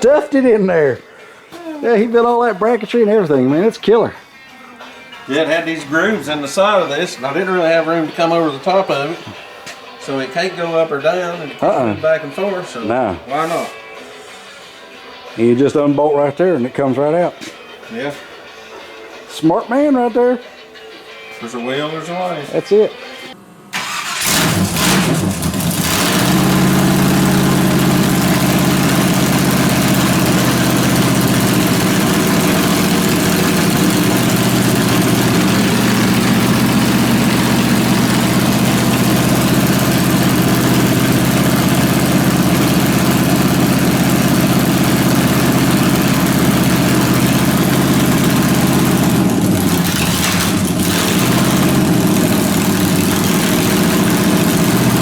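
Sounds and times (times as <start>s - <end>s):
aircraft engine idling: 26.3s - 55.0s.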